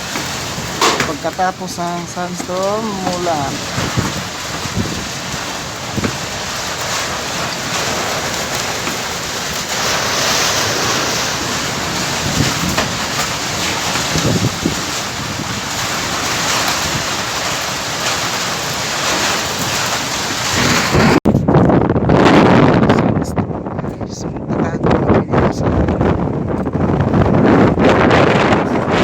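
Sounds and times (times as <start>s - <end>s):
storm wind buffeting microphone: 0.0s - 29.0s.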